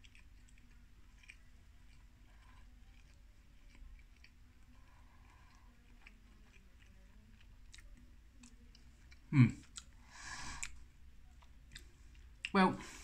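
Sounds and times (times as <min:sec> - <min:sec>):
person chewing soft food: 0:00.0 - 0:13.0
soft breath out: 0:10.0 - 0:10.8.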